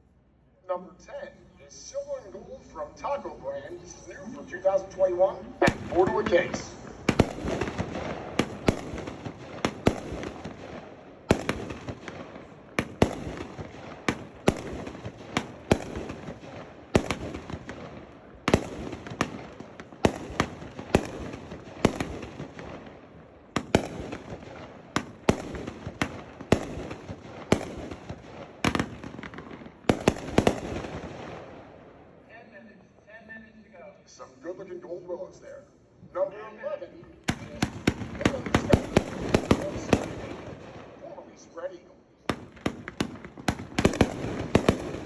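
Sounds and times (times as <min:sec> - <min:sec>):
firework bangs: 0:05.6 - 0:32.1, 0:37.2 - 0:41.0, 0:42.3 - 0:45.0.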